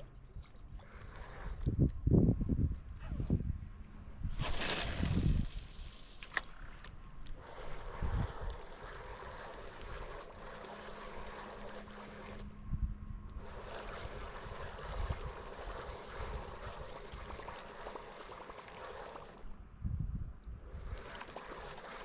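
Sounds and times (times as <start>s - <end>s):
water trickling and gurgling: 0.0s - 1.9s, 7.2s - 12.5s, 13.3s - 19.6s, 20.6s - 22.0s.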